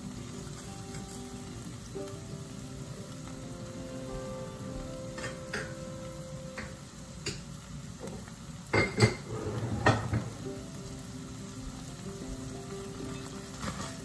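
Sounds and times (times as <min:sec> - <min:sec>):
vegetables sizzling in frying pan: 0:00.0 - 0:14.0
kitchenware clattering: 0:08.7 - 0:10.4.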